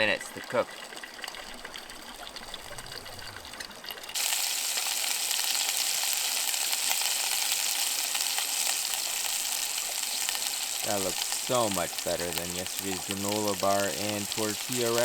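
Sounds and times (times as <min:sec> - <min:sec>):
running water: 0:00.0 - 0:15.0
fish sizzling in hot oil: 0:03.8 - 0:15.0.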